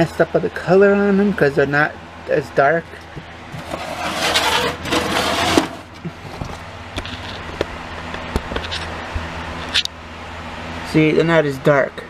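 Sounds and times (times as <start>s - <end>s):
plastic toy rustling scrape: 3.5s - 6.1s.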